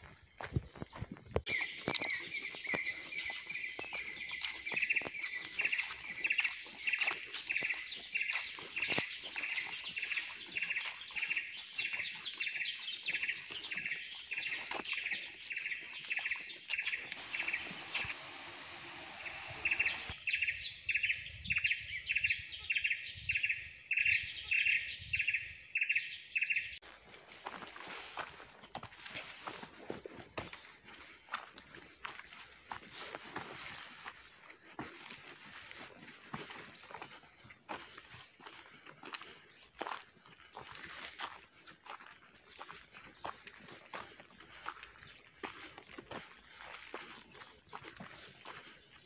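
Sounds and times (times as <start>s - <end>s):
insects hissing: 16.8s - 20.1s.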